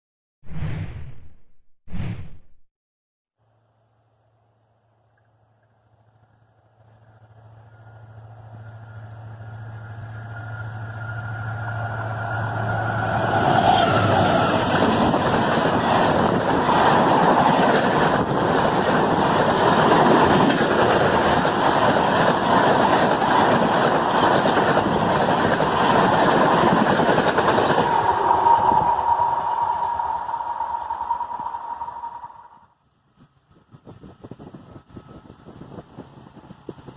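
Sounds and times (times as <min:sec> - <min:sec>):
locomotive engine hum: 0:05.0 - 0:36.9
train coaches rumbling and rattling: 0:06.8 - 0:32.3, 0:33.3 - 0:36.9.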